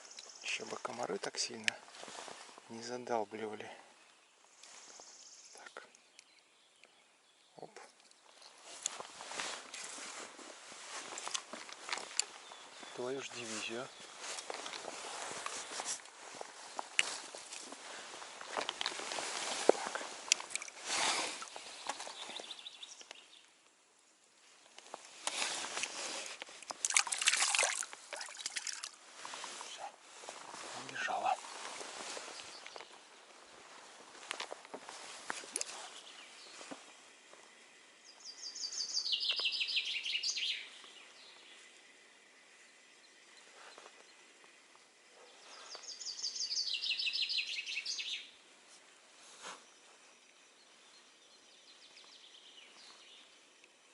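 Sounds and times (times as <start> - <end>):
grass rustling: 1.7 - 2.9, 8.2 - 23.2, 24.3 - 51.1
footsteps in grass: 1.8 - 2.8, 8.6 - 22.6, 24.7 - 38.3
crackles: 7.6 - 23.8, 24.4 - 37.6
songbird trilling: 38.1 - 41.7, 45.4 - 48.4.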